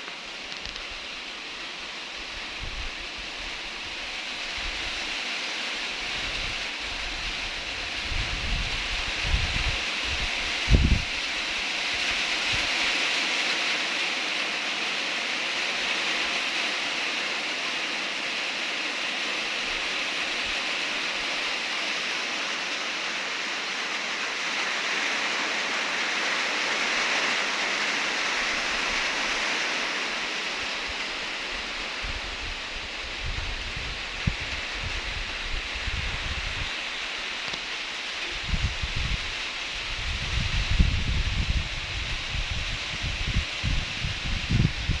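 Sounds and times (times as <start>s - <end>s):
steady rain falling: 0.0s - 45.0s
wind rumble on microphone: 2.2s - 5.1s, 5.9s - 12.9s, 30.4s - 45.0s.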